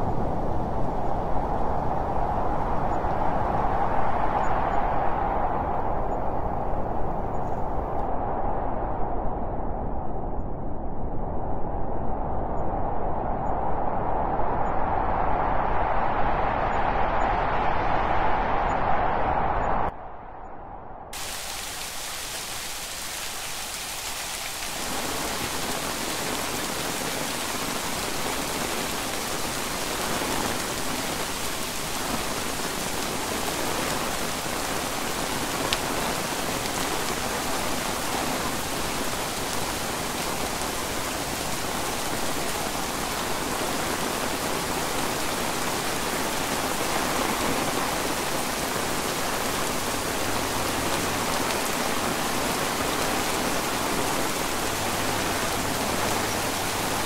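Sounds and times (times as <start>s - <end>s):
heavy rain on trees: 0.0s - 8.1s, 21.2s - 57.0s.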